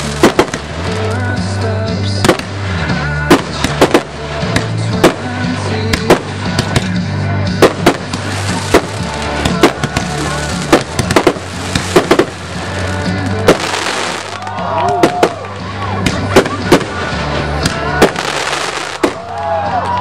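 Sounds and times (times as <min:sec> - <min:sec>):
music playing: 0:00.0 - 0:20.0
firework shells bursting: 0:07.6 - 0:14.4.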